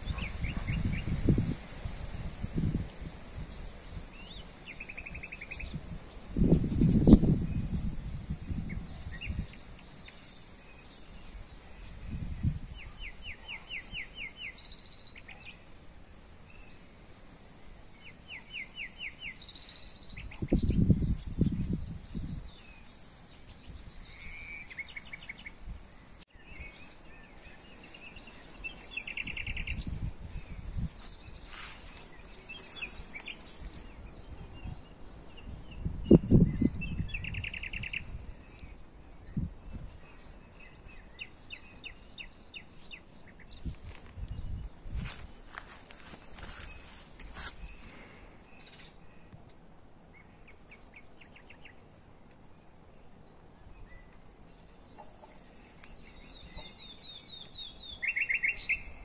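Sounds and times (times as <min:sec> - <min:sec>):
faint bird chirps: 0:02.5 - 0:15.8.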